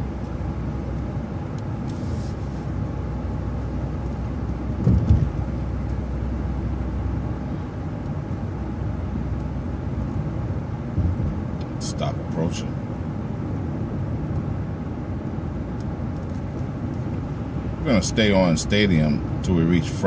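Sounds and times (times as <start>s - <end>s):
bus engine and road rumble: 0.0s - 20.0s
low thud: 4.8s - 5.4s.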